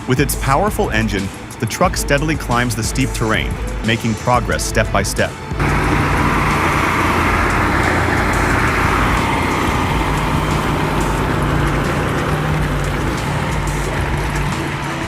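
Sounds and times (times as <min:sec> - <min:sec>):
tractor diesel engine under load: 0:00.0 - 0:15.0
truck diesel engine running: 0:00.0 - 0:15.0.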